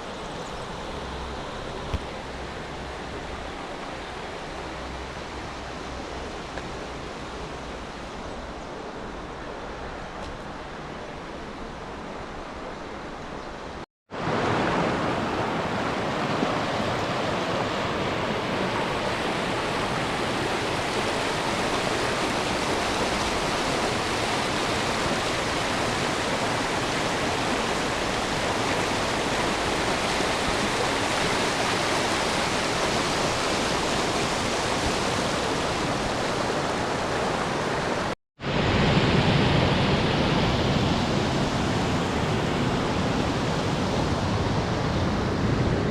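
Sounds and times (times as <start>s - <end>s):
rushing water roar: 0.0s - 45.9s.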